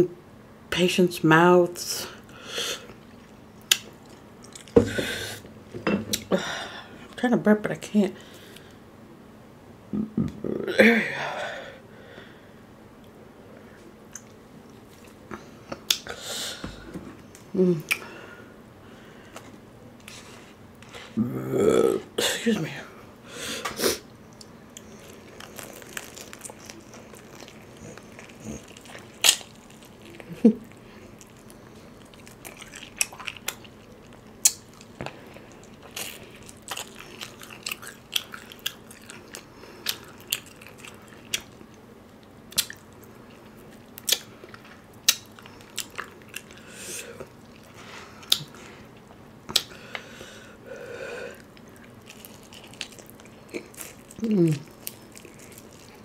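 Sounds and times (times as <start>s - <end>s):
wet mouth noises: 24.4s - 41.6s
crispy chicken crunching: 24.4s - 41.8s, 51.5s - 56.0s.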